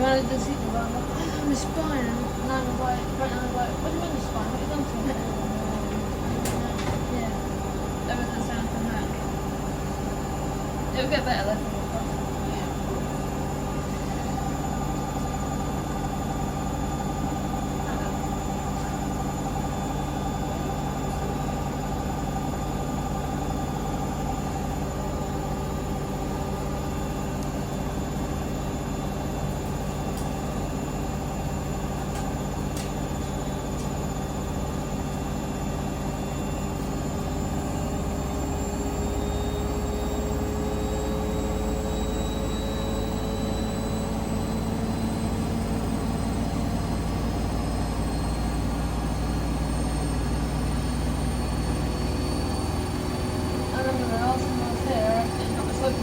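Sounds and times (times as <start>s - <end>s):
washing machine drum rumble: 0.0s - 23.8s
washing machine motor whine: 0.0s - 56.0s.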